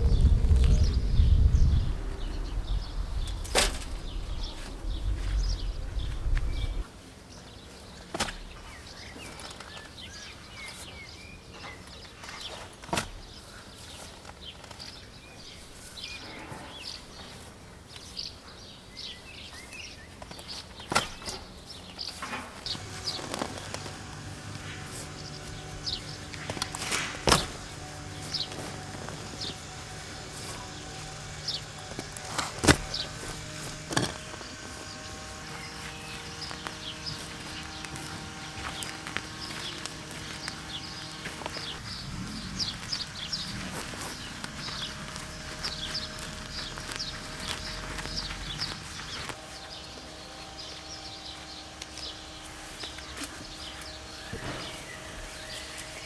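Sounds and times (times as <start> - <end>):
birds chirping: 0.0 - 6.9, 22.0 - 56.0
low rumble: 0.0 - 6.9, 22.7 - 48.8
steady low hum: 0.0 - 6.9, 22.7 - 56.0.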